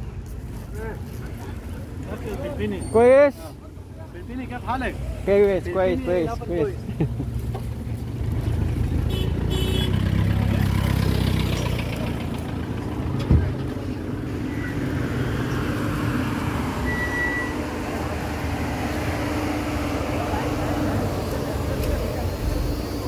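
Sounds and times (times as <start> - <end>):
vehicle engines running: 0.0 - 23.0
short high beep: 16.8 - 17.6.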